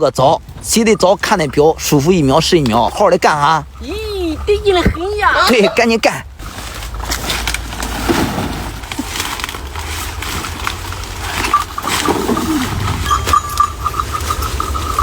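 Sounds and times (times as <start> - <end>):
low steady rumble: 0.0 - 15.0
corn and sacks rustling: 6.4 - 15.0
high-pitched tone: 11.5 - 15.0.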